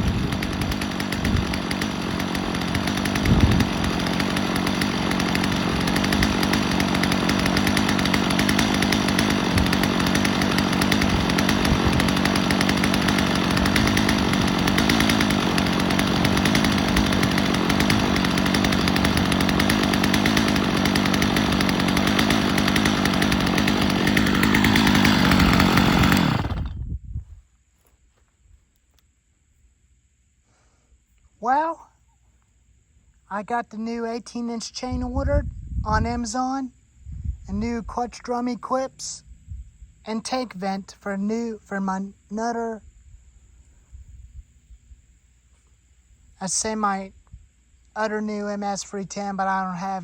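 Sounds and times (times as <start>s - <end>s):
chainsaw running: 0.0s - 26.8s, 37.5s - 39.2s, 40.0s - 42.0s.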